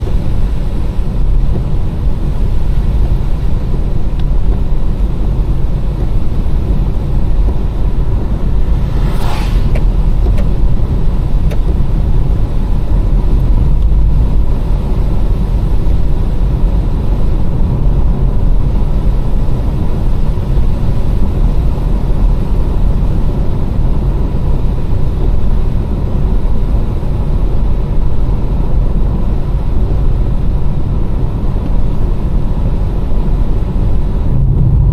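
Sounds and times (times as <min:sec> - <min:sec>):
car driving on wet road: 0:00.0 - 0:34.9
rising swish: 0:08.3 - 0:11.4, 0:34.2 - 0:34.9.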